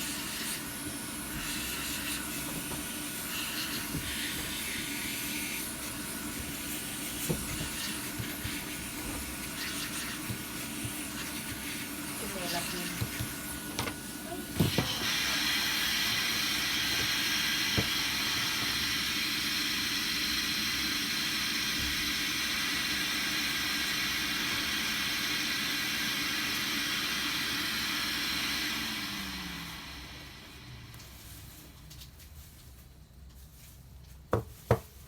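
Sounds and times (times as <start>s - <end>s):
hot air gun hissing: 0.0s - 20.9s.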